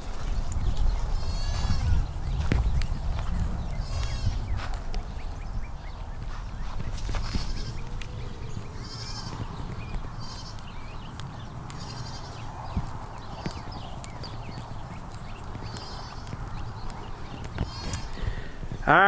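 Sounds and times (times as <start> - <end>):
wind rumble on microphone: 0.0 - 19.0
goats bleating: 1.1 - 2.1, 3.8 - 4.5, 8.7 - 10.7, 11.7 - 12.5, 15.5 - 16.6, 17.5 - 19.0
short high chirping calls: 13.4 - 18.2.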